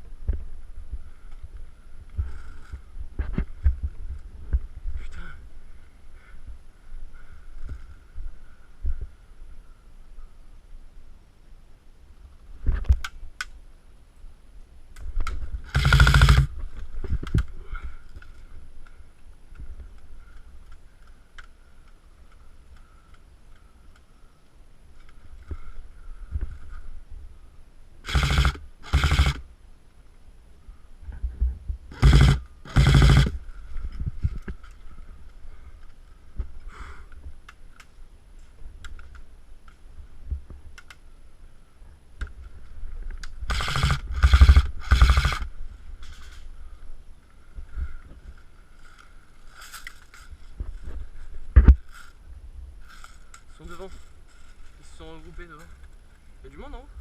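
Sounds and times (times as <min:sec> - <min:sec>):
airsoft rifle full-auto bursts: 0:15.6 - 0:16.5, 0:28.0 - 0:29.4, 0:31.9 - 0:33.4, 0:43.5 - 0:45.5.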